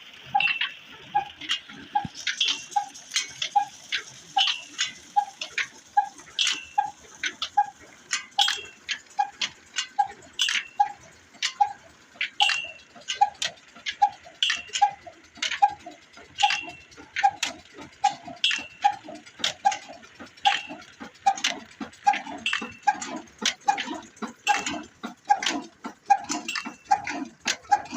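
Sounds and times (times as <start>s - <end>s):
stationary engine running slowly: 0.0s - 27.9s
valve gear clicks: 0.1s - 27.9s
sharp metallic clank: 12.4s - 12.8s.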